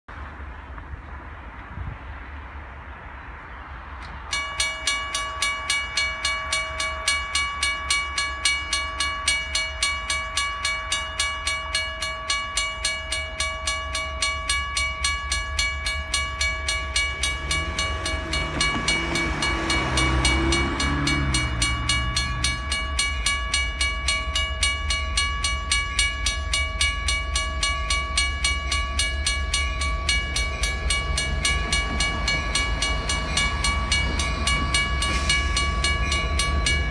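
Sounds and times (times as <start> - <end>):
railway crossing bell ringing: 4.1 - 36.9
locomotive low rumble: 15.4 - 36.9.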